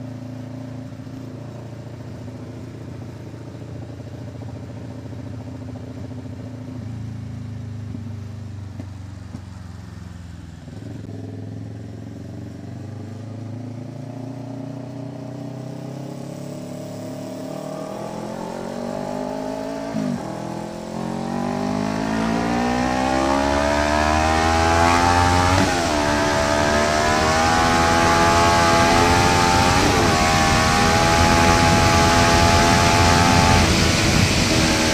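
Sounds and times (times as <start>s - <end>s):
motorcycle engine accelerating: 0.0s - 34.9s
rushing wind noise: 22.6s - 34.9s.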